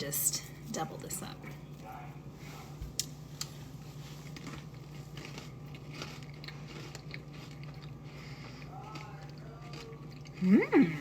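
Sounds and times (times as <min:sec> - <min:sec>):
steady low hum: 0:00.0 - 0:11.0
crackers crunching: 0:02.9 - 0:11.0.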